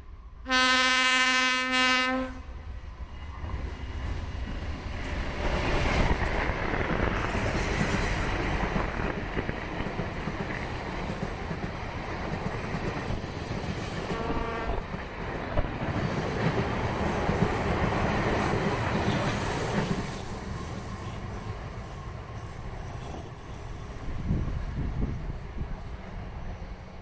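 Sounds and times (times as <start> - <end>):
train passing rumble: 0.0 - 27.0
train horn blast: 0.4 - 2.5, 14.0 - 14.9.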